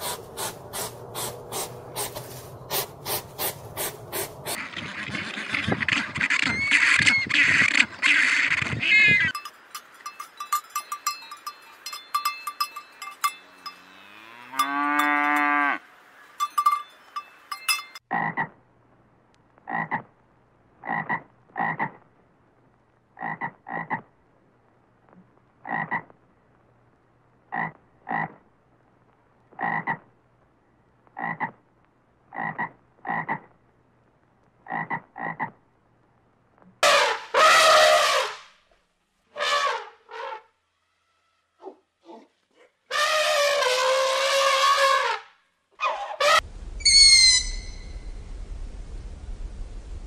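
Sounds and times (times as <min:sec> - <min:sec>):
collar bell clinking: 0:09.3 - 0:15.5, 0:16.4 - 0:18.0
calf mooing: 0:13.6 - 0:15.8
frog croaking: 0:18.1 - 0:18.6, 0:19.6 - 0:20.1, 0:20.8 - 0:22.0, 0:23.2 - 0:24.1, 0:25.6 - 0:26.1, 0:27.5 - 0:28.4, 0:29.5 - 0:30.1, 0:31.2 - 0:31.6, 0:32.3 - 0:33.5, 0:34.6 - 0:35.6.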